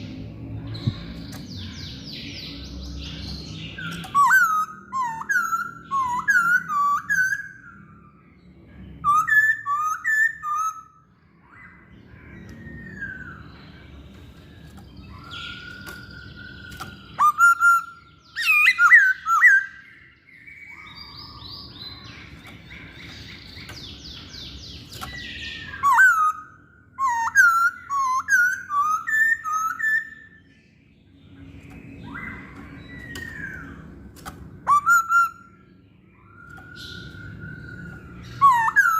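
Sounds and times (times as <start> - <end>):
laughingthrush whistled song: 3.8 - 8.0, 15.1 - 21.4, 34.6 - 35.6, 36.2 - 38.9.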